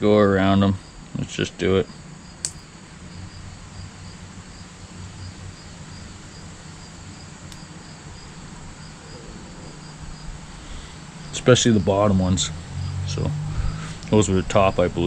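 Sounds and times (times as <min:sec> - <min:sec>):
crickets chirping: 0:00.2 - 0:15.0
sharp click: 0:02.4 - 0:02.7.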